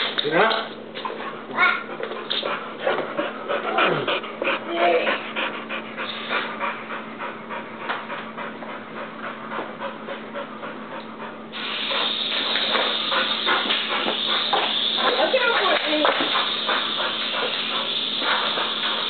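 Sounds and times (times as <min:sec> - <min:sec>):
dog panting: 0:01.0 - 0:19.0
steady hiss: 0:11.6 - 0:19.0.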